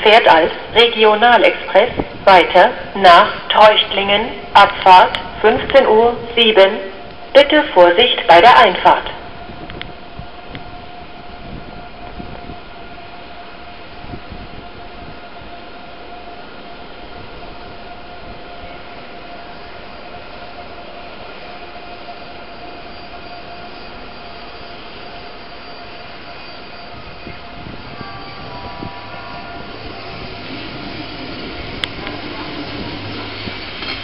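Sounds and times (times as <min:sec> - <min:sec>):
electric train rolling with whine: 0:00.0 - 0:34.0.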